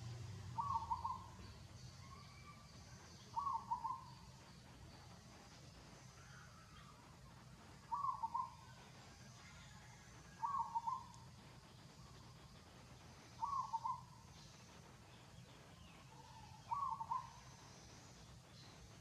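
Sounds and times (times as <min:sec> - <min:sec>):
faint low hum: 0:00.0 - 0:19.0
bird hooting call: 0:00.5 - 0:04.3, 0:07.9 - 0:08.8, 0:09.8 - 0:11.2, 0:13.4 - 0:14.2, 0:16.1 - 0:17.8.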